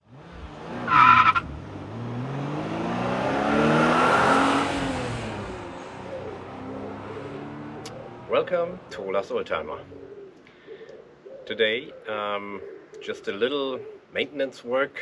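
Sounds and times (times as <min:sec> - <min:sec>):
car driving past: 0:00.0 - 0:09.9.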